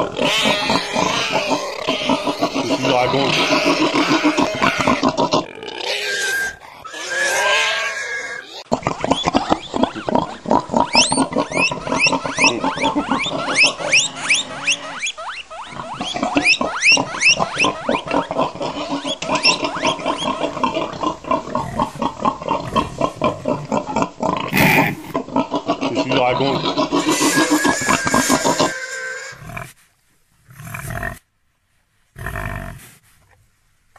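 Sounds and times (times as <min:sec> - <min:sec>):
high rising pig squeals: 0:00.0 - 0:21.0, 0:24.4 - 0:29.6
pigs grunting: 0:00.0 - 0:29.7.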